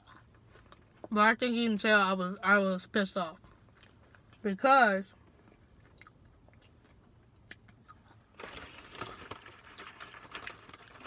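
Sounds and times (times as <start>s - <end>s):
person chewing fries: 0.0s - 1.0s, 5.5s - 11.0s.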